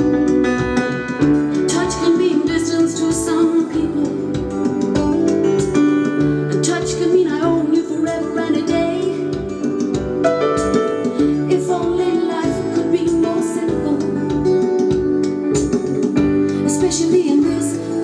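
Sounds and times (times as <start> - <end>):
song with keyboard and beat: 0.0 - 18.0.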